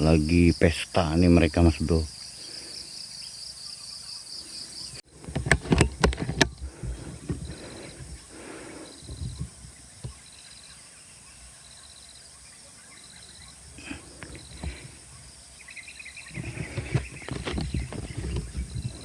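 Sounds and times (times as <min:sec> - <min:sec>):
insect chirping: 0:00.0 - 0:19.0
rustling and handling thumps: 0:05.1 - 0:10.2, 0:13.8 - 0:15.0, 0:16.3 - 0:19.0.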